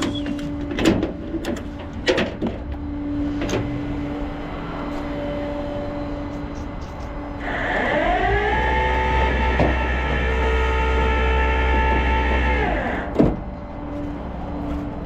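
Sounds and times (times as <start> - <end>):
hydraulic pump whining: 6.1 - 13.6.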